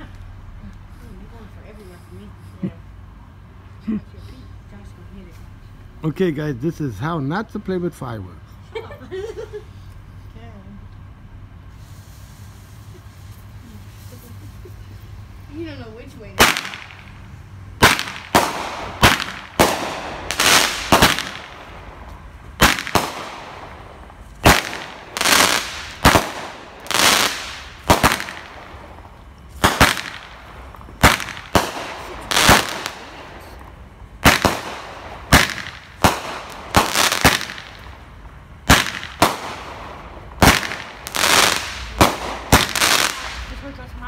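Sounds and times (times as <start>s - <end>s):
fireworks bangs with crackling hiss: 11.4s - 44.0s.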